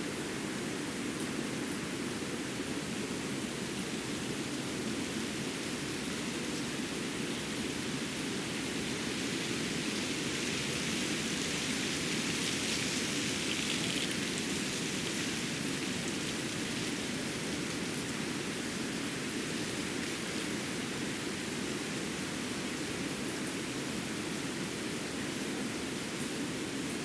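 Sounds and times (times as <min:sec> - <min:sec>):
steady rushing hiss: 0:00.0 - 0:27.0.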